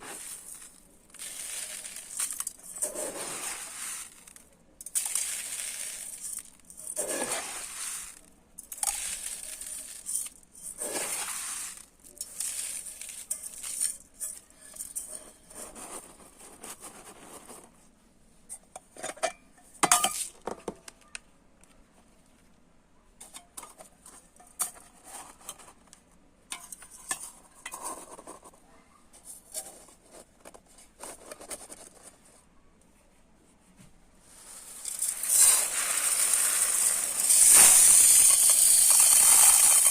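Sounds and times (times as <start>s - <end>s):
rice grains pouring into a dish: 0.0s - 16.2s, 34.3s - 39.9s.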